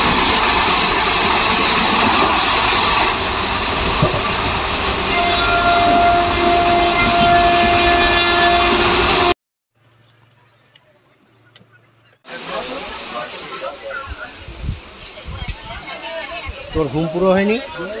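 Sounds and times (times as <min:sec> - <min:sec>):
train wheel and wind rush: 0:00.0 - 0:09.3, 0:14.0 - 0:18.0.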